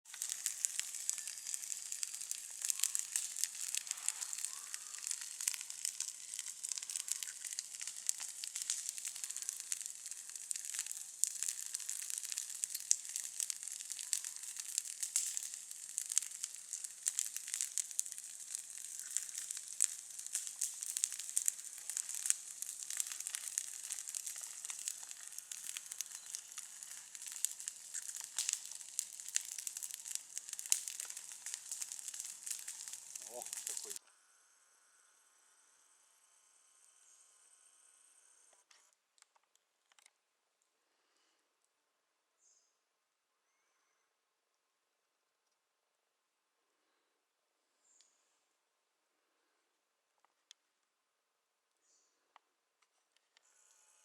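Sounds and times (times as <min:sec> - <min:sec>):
campfire crackling and popping: 0:00.0 - 0:34.0
steady fire hiss: 0:00.1 - 0:34.0.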